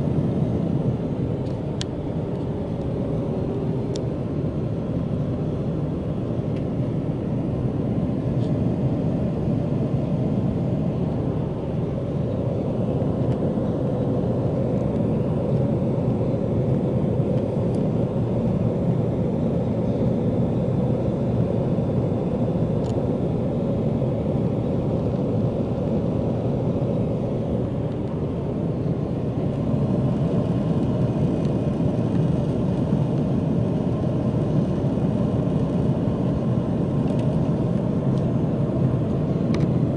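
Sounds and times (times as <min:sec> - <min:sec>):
jet airliner cabin drone: 0:00.0 - 0:39.9.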